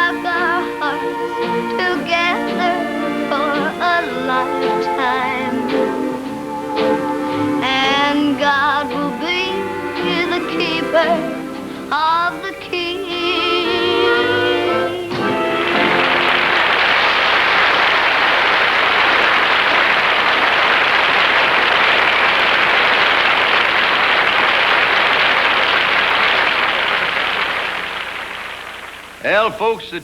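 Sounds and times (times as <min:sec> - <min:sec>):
audience applauding: 0:00.0 - 0:12.0, 0:15.1 - 0:29.7
country song with band: 0:00.0 - 0:16.4.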